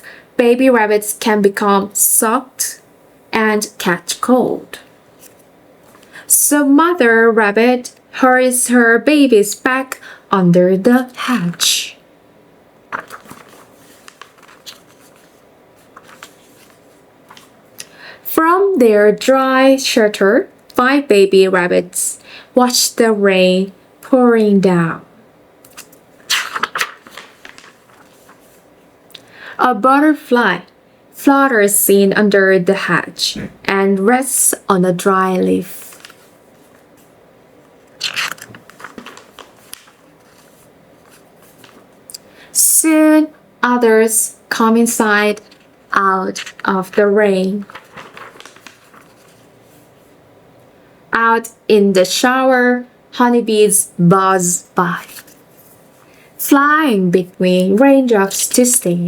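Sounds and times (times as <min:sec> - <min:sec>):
book page rustling: 0:12.9 - 0:17.6, 0:25.7 - 0:28.7, 0:35.7 - 0:42.0, 0:46.3 - 0:50.1, 0:54.9 - 0:56.1.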